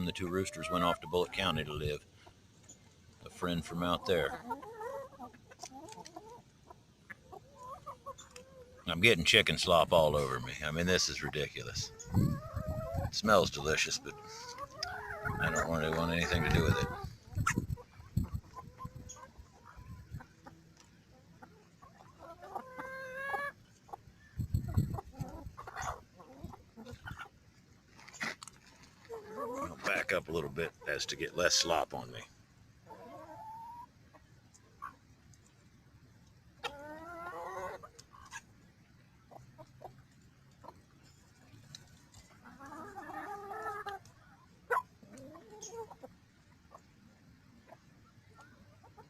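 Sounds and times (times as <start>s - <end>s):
hens clucking: 0.0s - 49.0s
drawn-out hen call: 3.3s - 20.6s, 21.4s - 27.4s, 42.4s - 46.1s.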